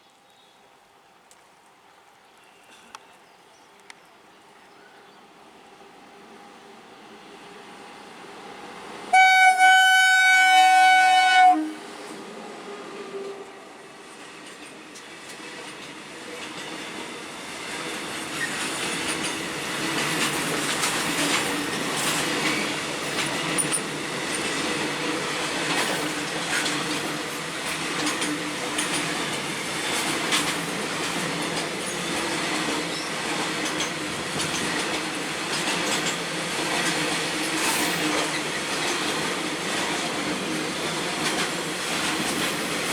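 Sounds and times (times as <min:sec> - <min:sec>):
freight train rumbling past: 0:05.8 - 0:42.9
locomotive horn blast: 0:09.1 - 0:11.9.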